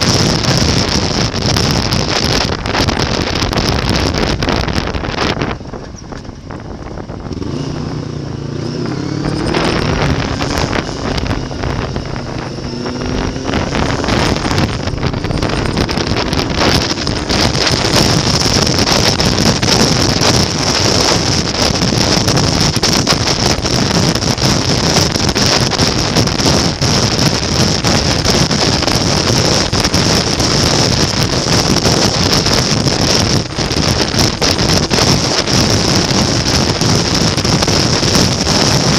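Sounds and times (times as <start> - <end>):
motorcycle engine accelerating: 0.0 - 38.9
wind rush on microphone: 0.0 - 38.9.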